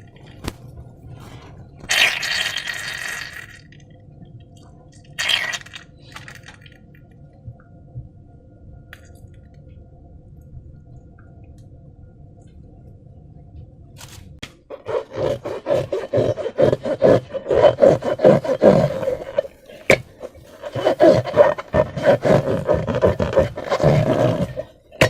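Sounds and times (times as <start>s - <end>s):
faint background hum: 0.0s - 25.0s
slime squishing by hand: 14.8s - 25.0s.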